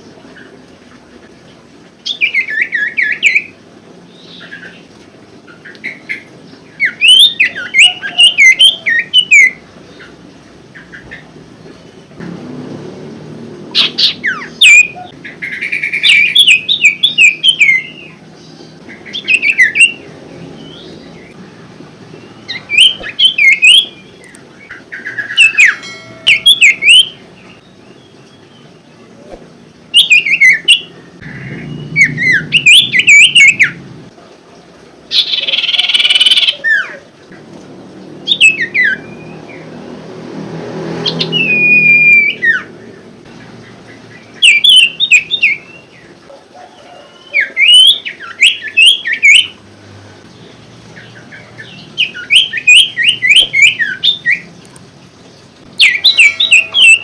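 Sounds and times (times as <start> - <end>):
bird whistling chirpy song: 2.0 - 3.6, 5.6 - 9.6, 13.8 - 18.2, 18.9 - 20.0, 22.2 - 28.7, 29.9 - 33.8, 35.1 - 37.0, 38.3 - 39.6, 41.0 - 42.7, 44.2 - 45.9, 46.8 - 49.6, 51.0 - 54.5, 55.8 - 57.0.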